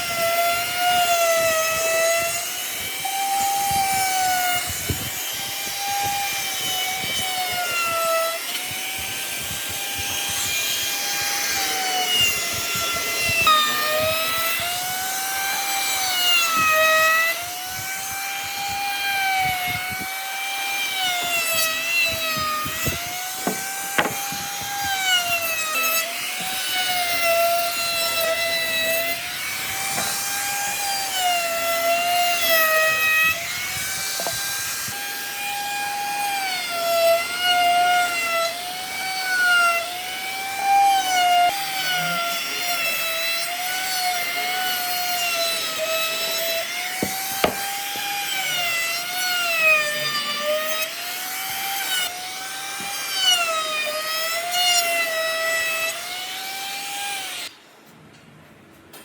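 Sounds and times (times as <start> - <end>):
power tool motor whining: 0.0 - 57.5
wood scraping and knocking: 21.2 - 25.3, 47.0 - 48.4.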